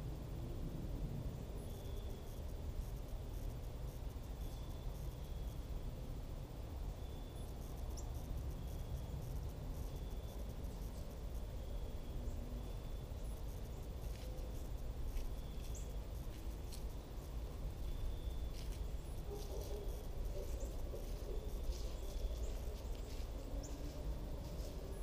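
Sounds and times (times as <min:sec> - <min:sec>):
low outdoor rumble: 0:00.0 - 0:25.0
small birds chirping: 0:06.9 - 0:25.0.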